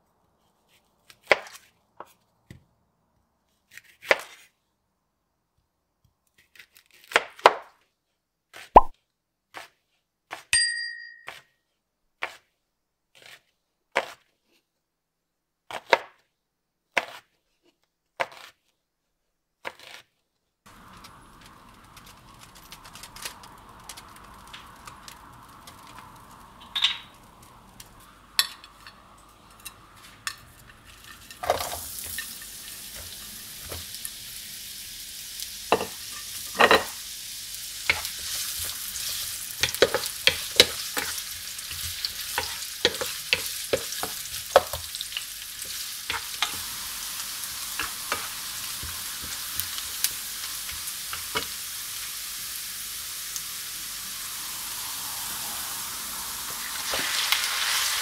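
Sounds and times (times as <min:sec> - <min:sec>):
onions sizzling in oil: 0:20.7 - 0:58.0
wooden spatula knocking pan: 0:39.6 - 0:41.2, 0:41.8 - 0:45.0.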